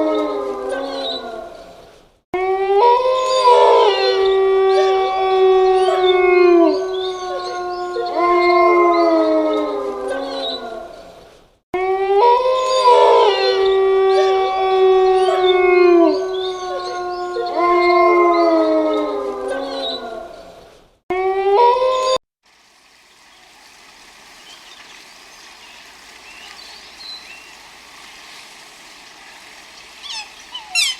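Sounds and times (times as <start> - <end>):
wolves howling in chorus: 2.6 - 11.0, 12.0 - 20.5.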